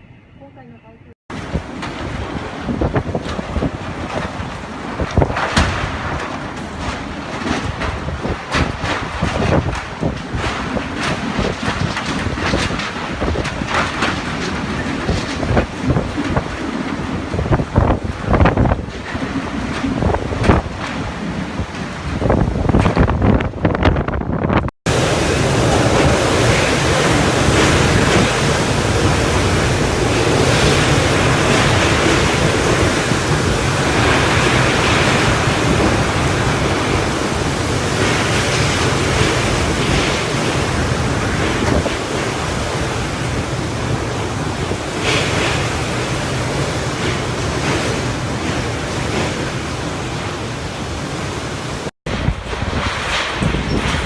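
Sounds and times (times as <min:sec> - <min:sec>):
strong wind buffeting microphone: 0:01.3 - 0:54.0
surging water: 0:24.9 - 0:54.0.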